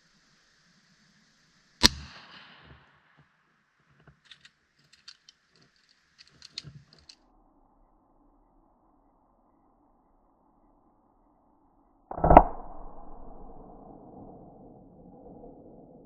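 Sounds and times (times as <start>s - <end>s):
shotgun shot echoing: 1.8s - 3.1s, 12.1s - 13.6s
faint clicks and rustles: 3.8s - 7.2s.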